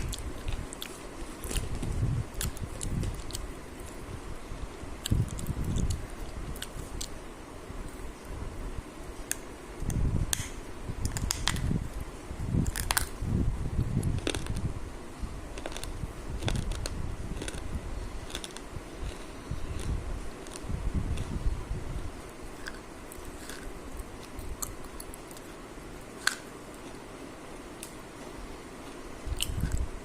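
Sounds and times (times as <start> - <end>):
person chewing with crunches: 0.0 - 4.1, 5.0 - 7.2, 13.8 - 14.7, 15.5 - 27.1, 28.8 - 29.9.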